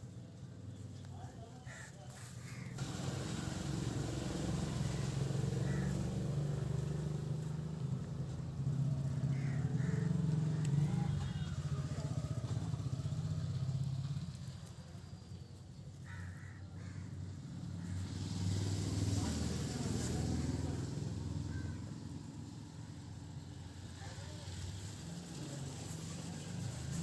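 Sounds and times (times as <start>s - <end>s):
motor engine pulsing hum: 2.8s - 14.8s.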